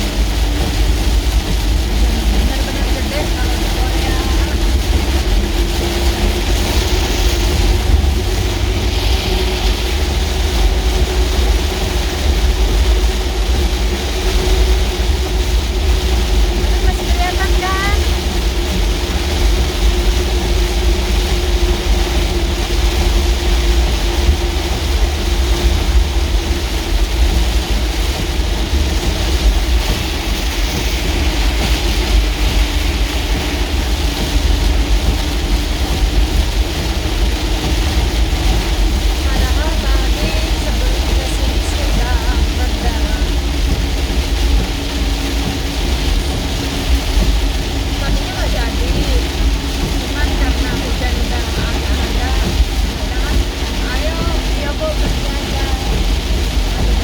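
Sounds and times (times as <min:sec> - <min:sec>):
engine hum: 0:00.0 - 0:57.0
vehicle road rumble: 0:00.0 - 0:57.0.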